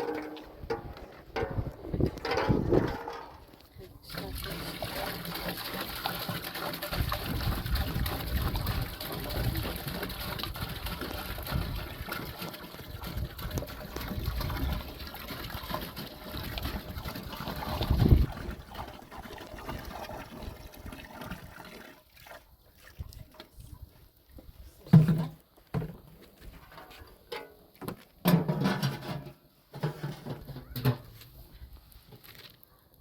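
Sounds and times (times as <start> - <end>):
water gushing into a tank: 4.0 - 23.4.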